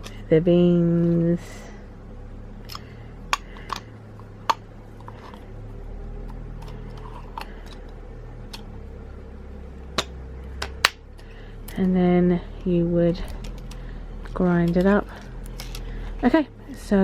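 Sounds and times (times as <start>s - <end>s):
steady low hum: 0.0s - 17.0s
coffee grinder parts clicking: 2.7s - 3.9s.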